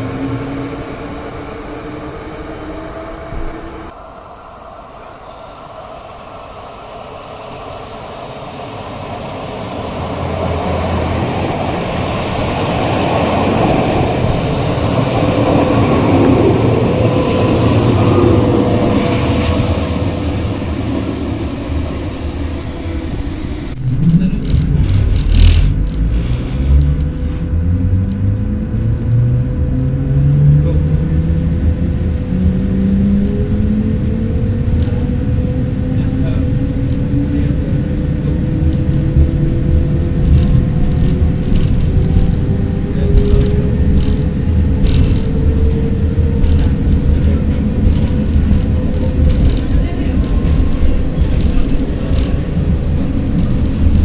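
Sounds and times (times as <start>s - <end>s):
electric train rumbling: 0.0s - 54.0s
faint rising whine: 0.1s - 12.6s.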